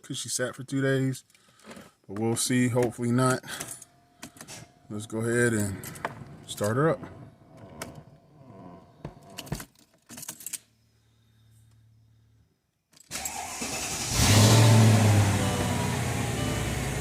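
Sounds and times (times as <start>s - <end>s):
car engine starting and idling: 13.1s - 17.0s.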